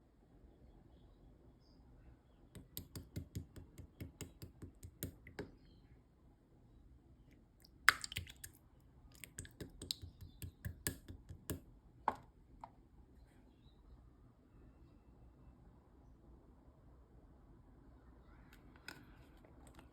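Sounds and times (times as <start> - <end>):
slime squished by hand: 7.6 - 11.1.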